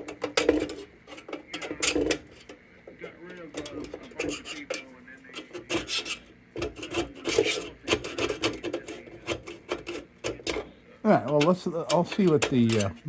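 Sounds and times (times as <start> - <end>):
scraping on sheet metal: 3.6 - 13.0.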